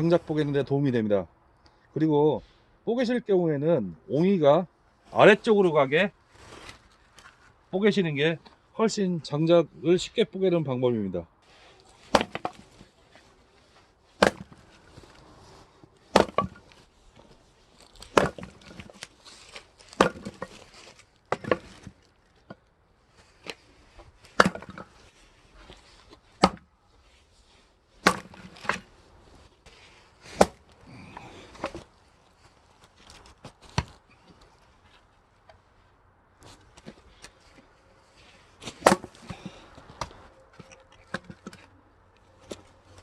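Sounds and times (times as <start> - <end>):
split wood pieces clattering: 11.6 - 13.3, 14.2 - 15.0, 16.0 - 22.6, 23.4 - 25.0, 28.0 - 28.9, 38.6 - 41.7
axe chopping wood: 12.0 - 12.8, 14.2 - 14.8, 16.1 - 16.8, 18.0 - 19.1, 19.9 - 20.6, 21.3 - 22.0, 24.3 - 25.0, 26.4 - 26.7, 28.0 - 28.8, 30.3 - 31.9, 38.6 - 41.6.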